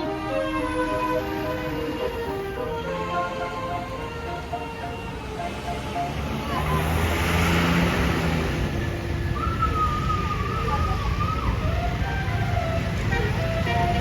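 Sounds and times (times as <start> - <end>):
bus air horn playing tune: 0.0 - 5.2, 12.8 - 14.0
bus engines rumbling: 0.0 - 14.0
traffic: 0.0 - 14.0.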